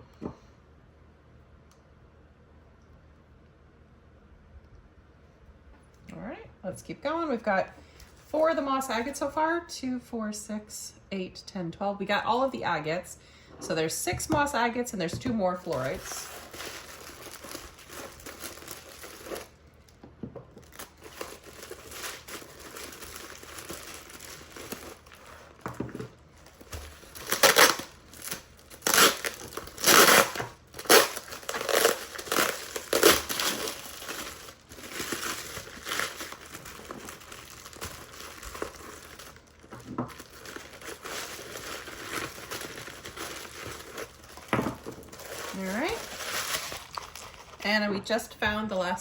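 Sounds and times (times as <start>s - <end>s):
packaging crinkling and rustling: 15.5s - 47.6s.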